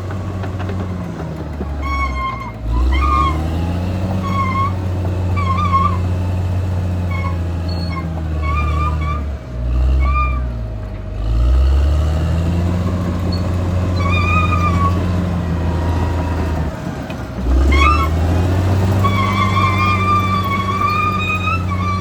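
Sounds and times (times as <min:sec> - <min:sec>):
bulldozer diesel engine running: 0:00.0 - 0:22.0
short high-pitched squeaks: 0:01.8 - 0:06.1, 0:07.1 - 0:09.3, 0:13.3 - 0:15.3, 0:17.6 - 0:18.2, 0:19.0 - 0:22.0.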